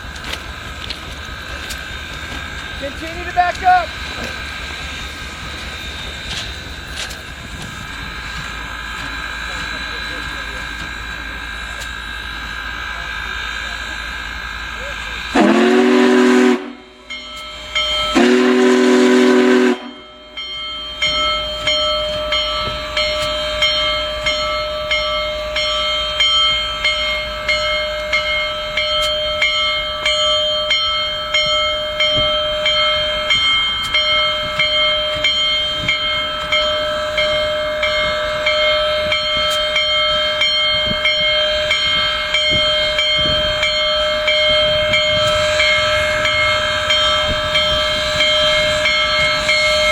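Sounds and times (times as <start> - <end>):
hissing steam: 0.0 - 20.1, 20.7 - 49.9
locomotive bell ringing: 0.0 - 49.9
steam locomotive whistle blasts: 15.3 - 20.2.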